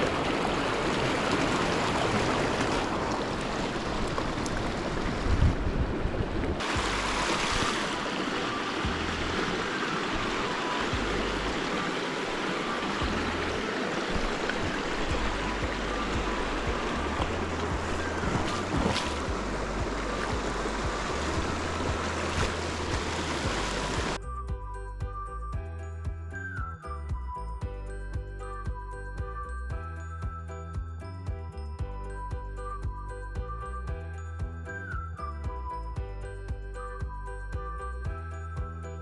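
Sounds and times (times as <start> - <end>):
wind buffeting microphone: 0.0 - 11.8, 12.4 - 24.2
mountain stream rushing: 0.0 - 24.2.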